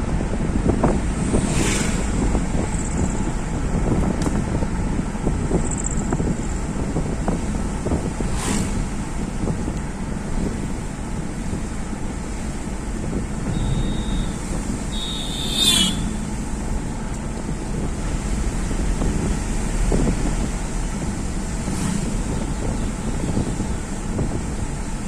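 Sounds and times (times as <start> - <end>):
road and wind noise of vehicle: 0.0 - 25.0
short high-pitched tone: 13.5 - 16.2.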